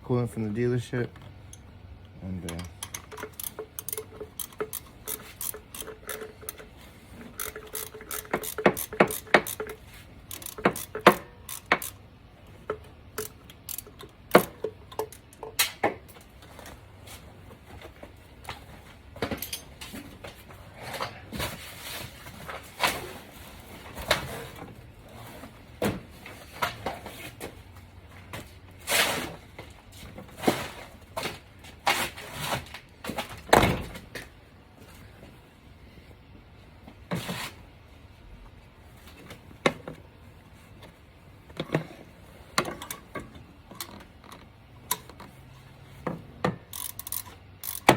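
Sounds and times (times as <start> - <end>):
metallic tool clicks and clanks: 2.4 - 12.0, 12.6 - 15.8, 19.3 - 19.9, 46.6 - 47.9
tool scraping metal: 2.5 - 12.0.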